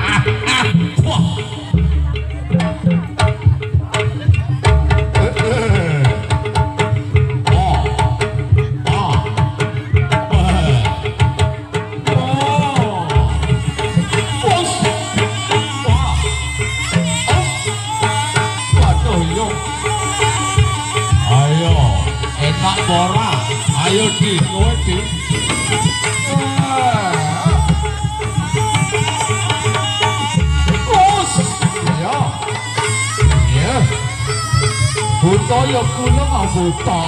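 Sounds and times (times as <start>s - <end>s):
hand drums beating fast: 0.0s - 37.0s
wavering melody line: 13.0s - 37.0s.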